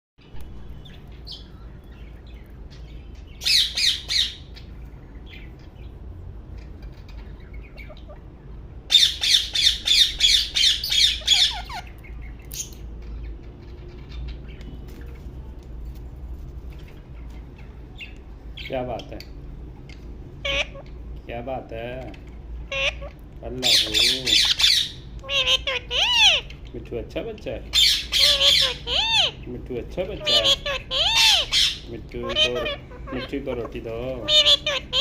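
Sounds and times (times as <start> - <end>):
parrot squawking: 2.9 - 4.7, 6.6 - 14.6, 20.3 - 21.2, 22.6 - 26.7, 27.6 - 35.0.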